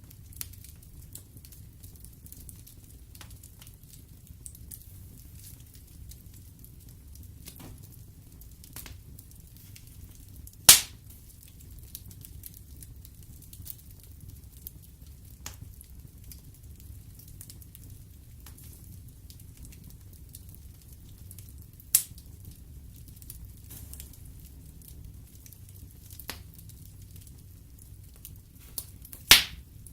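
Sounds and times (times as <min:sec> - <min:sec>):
fire crackling: 0:00.0 - 0:29.9
fire flames rumbling: 0:00.0 - 0:29.9
loud sharp pops: 0:10.7 - 0:11.0, 0:29.2 - 0:29.6.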